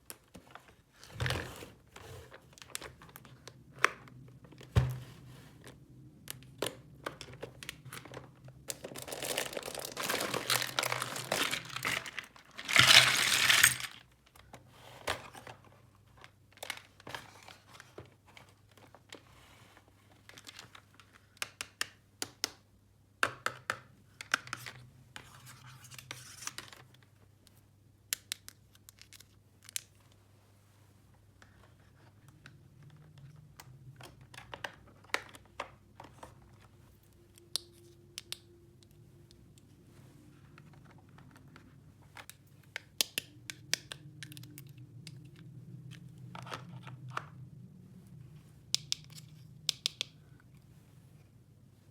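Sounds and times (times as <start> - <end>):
crinkling: 7.1 - 14.6
plastic toy pieces clicking: 10.8 - 14.0.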